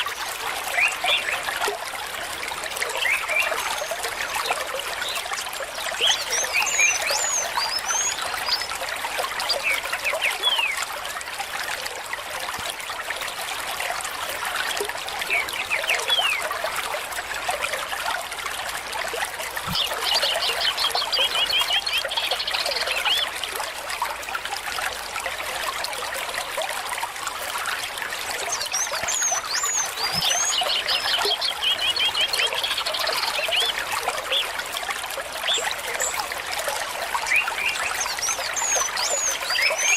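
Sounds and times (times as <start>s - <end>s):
small stream babbling: 0.0s - 39.9s
birds chirping and trilling: 2.9s - 8.8s, 19.7s - 23.3s, 28.4s - 34.6s, 37.1s - 39.9s.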